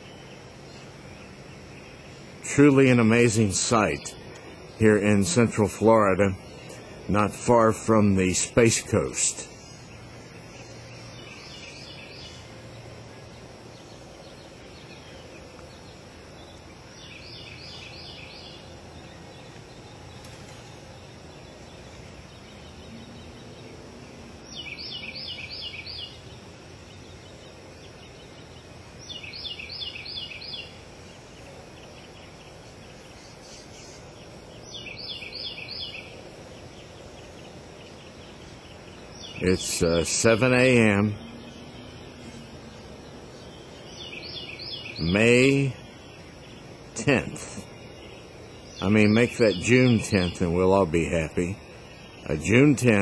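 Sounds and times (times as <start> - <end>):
outdoor background noise: 0.0 - 53.0.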